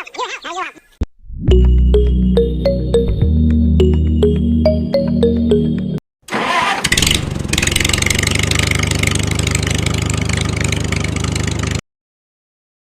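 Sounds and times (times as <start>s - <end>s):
small engine running: 6.8s - 11.8s.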